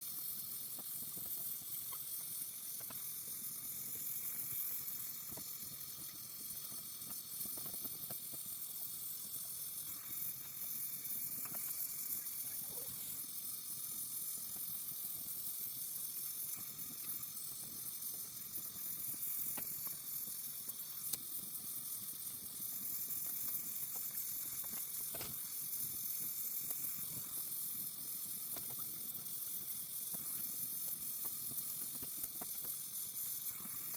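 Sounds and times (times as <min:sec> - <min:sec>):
welding arc hissing: 0:00.0 - 0:33.9
faint ticks: 0:00.7 - 0:03.1, 0:16.5 - 0:20.0, 0:20.6 - 0:21.4, 0:28.4 - 0:32.8.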